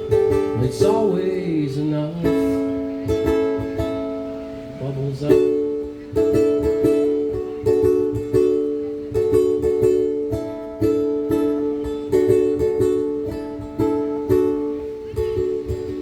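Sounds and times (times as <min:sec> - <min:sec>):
ukulele strumming: 0:00.0 - 0:16.0.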